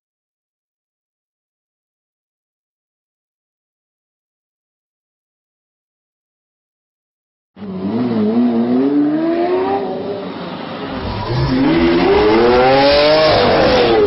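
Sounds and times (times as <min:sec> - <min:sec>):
car engine accelerating: 0:07.6 - 0:14.0.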